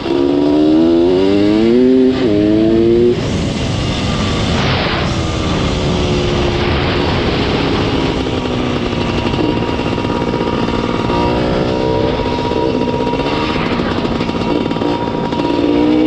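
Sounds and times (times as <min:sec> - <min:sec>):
motorcycle engine running: 0:00.0 - 0:16.0
wind noise on microphone: 0:00.0 - 0:16.0.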